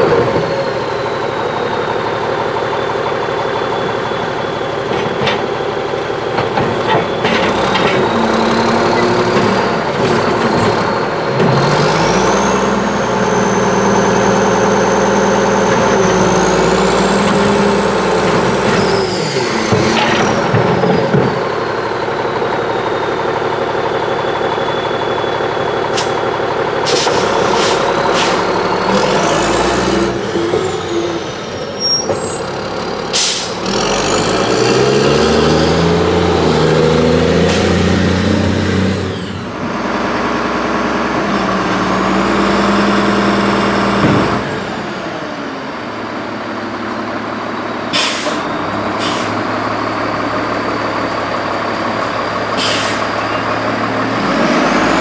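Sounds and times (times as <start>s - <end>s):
garbage truck diesel engine revving: 0.0s - 55.0s
air brake hisses: 26.8s - 28.6s, 33.1s - 33.6s, 47.9s - 49.5s, 52.6s - 53.2s.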